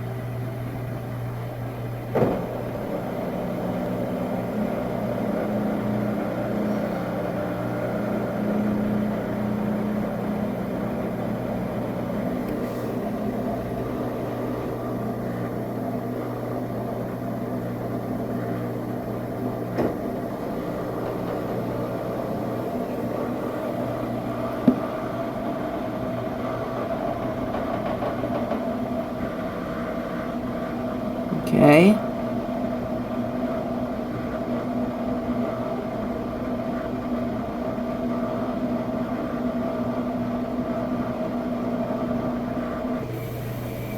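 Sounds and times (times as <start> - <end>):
washing machine motor hum: 0.0 - 43.9.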